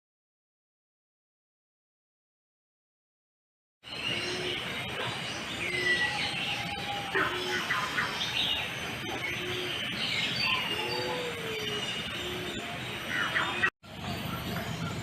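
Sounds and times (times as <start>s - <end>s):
bird whistles and chirps: 3.9s - 15.0s
low bird hoot: 4.0s - 8.4s, 9.0s - 13.7s.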